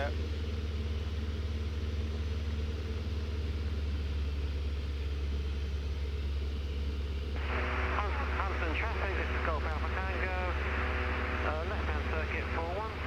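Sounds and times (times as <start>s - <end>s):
light aircraft engine drone: 0.0s - 13.0s.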